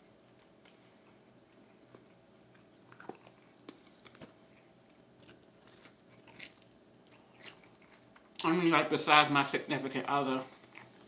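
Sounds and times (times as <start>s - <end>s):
person chewing food: 0.2s - 8.5s, 10.4s - 11.0s.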